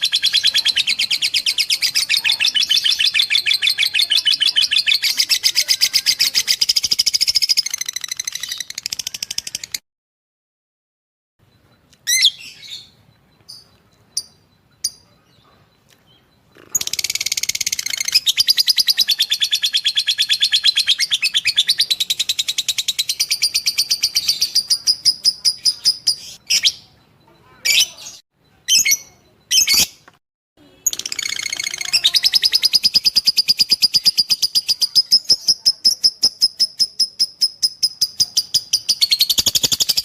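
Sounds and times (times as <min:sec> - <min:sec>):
lovebird chirping and trilling: 0:00.0 - 0:09.8, 0:11.6 - 0:40.0.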